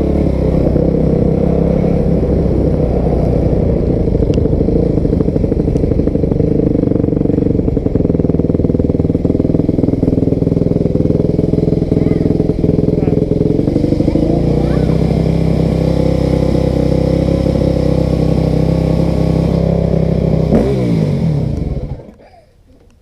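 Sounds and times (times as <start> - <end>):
dirt bike engine running: 0.0 - 22.3.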